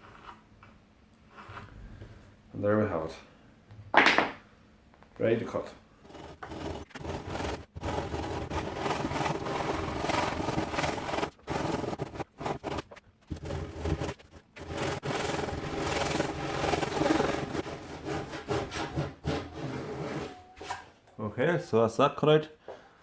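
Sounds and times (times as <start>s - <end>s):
saw cutting timber: 6.0s - 19.8s.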